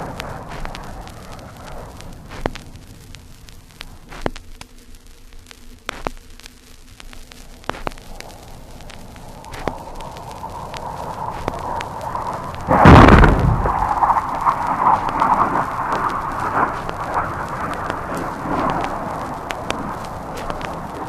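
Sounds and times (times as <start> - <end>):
record pops and clicks: 0.0 - 21.0
record surface hiss: 0.0 - 21.0
low rumble of blast: 8.2 - 21.0.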